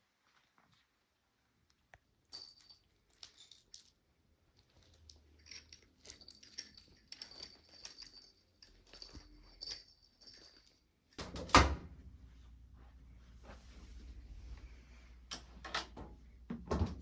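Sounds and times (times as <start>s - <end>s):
small metal pieces jingling: 2.3s - 4.0s, 4.6s - 11.2s.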